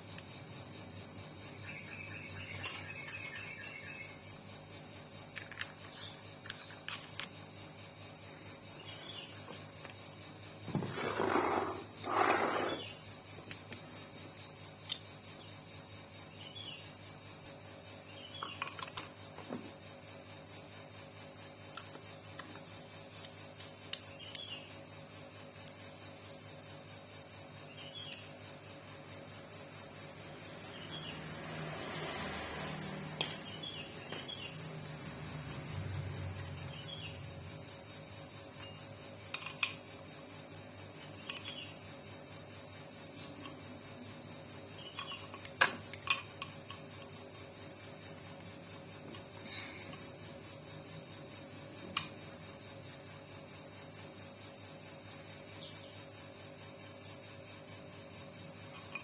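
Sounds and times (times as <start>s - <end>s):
rubbing and scraping on metal: 10.8s - 12.9s.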